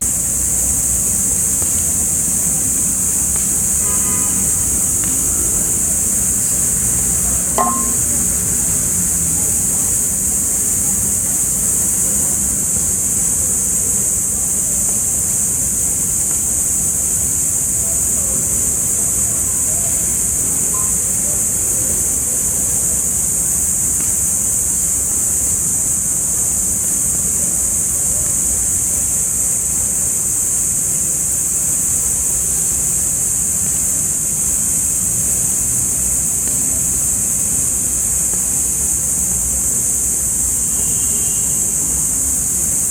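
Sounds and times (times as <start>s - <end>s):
traffic rumble: 0.0s - 14.5s
high-pitched hiss: 0.0s - 42.9s.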